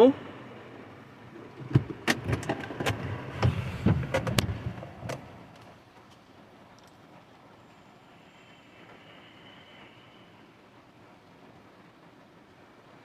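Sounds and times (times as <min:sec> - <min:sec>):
sharp clicks and knocks: 0:01.6 - 0:06.2.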